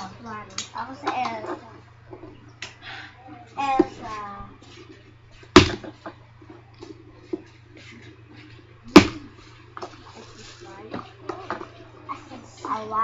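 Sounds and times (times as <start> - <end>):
faint handling sounds: 0.0 - 13.0
loud sharp knocks: 5.6 - 6.1, 9.0 - 9.3.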